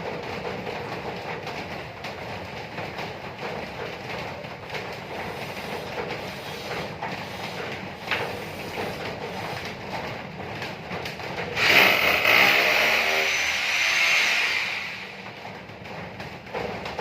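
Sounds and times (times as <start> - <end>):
power tool running loudly: 11.6 - 15.3.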